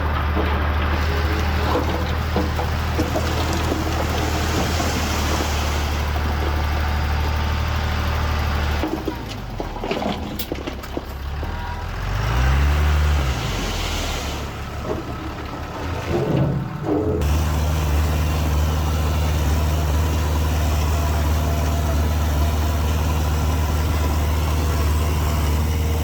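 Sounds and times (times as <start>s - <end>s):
heavy diesel machinery running: 0.0s - 26.0s
engine revving: 11.5s - 14.7s, 17.2s - 26.0s.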